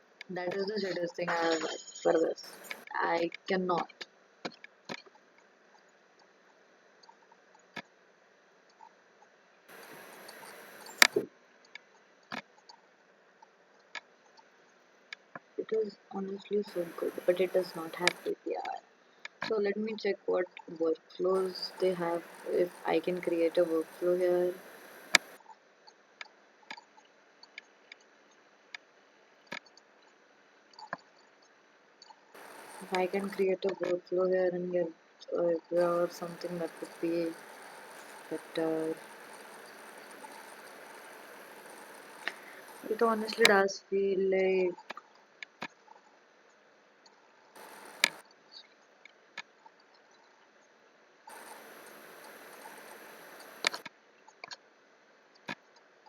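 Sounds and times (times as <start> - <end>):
soft hiss: 0.0 - 7.8, 9.7 - 12.4, 14.6 - 25.4, 32.3 - 45.0, 47.5 - 49.1, 51.2 - 53.9
sharp clicks: 2.3 - 3.0, 9.7 - 11.3, 16.6 - 18.4, 21.3 - 25.4, 32.4 - 33.9, 35.8 - 43.6, 47.6 - 48.2, 51.3 - 53.9.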